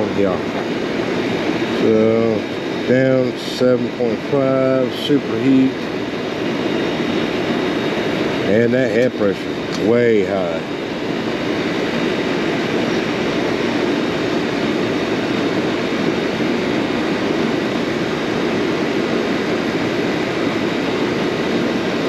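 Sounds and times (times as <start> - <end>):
air conditioning unit running: 0.0 - 22.0.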